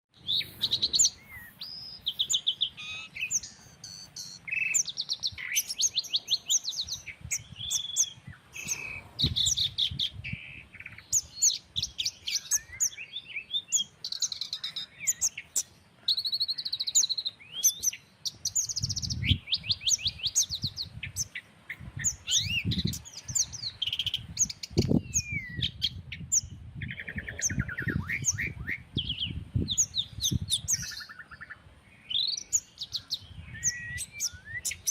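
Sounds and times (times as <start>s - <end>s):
songbirds chirping and trilling: 0.1s - 34.9s
low breeze rumble: 5.2s - 12.4s, 17.8s - 34.6s.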